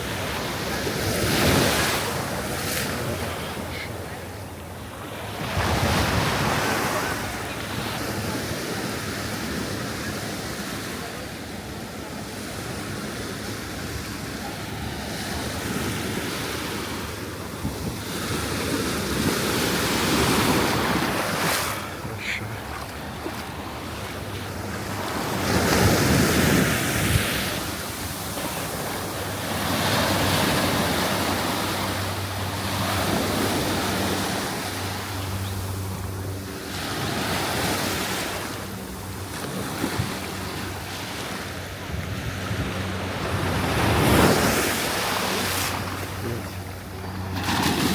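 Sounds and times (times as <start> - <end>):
surf breaking on beach: 39.2 - 47.9.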